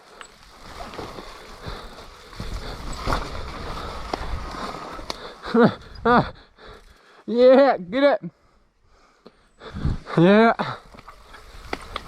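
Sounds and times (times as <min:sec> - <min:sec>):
tyres splashing through mud: 0:00.0 - 0:05.4
bike knocking and rattling: 0:00.0 - 0:07.0, 0:10.8 - 0:12.0.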